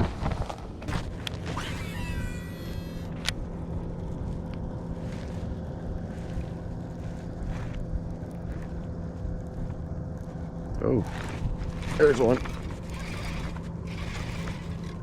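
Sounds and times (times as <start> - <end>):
fishing reel whirring: 1.5 - 3.3, 11.0 - 15.0.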